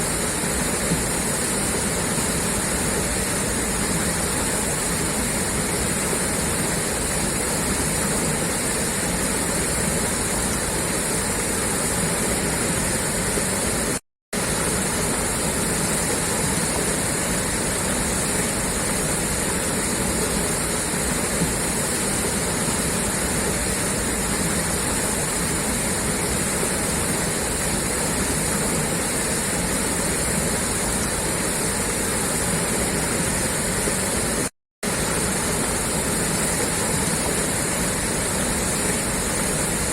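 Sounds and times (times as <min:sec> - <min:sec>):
water gushing from a pipe: 0:00.0 - 0:39.9.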